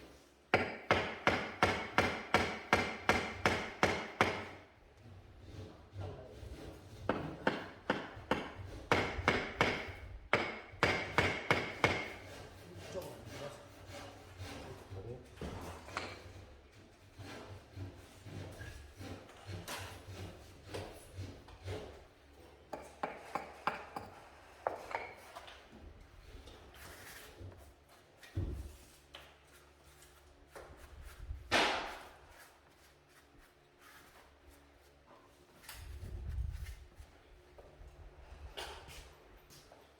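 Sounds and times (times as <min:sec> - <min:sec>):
hammer striking: 0:00.5 - 0:04.6, 0:07.1 - 0:12.2.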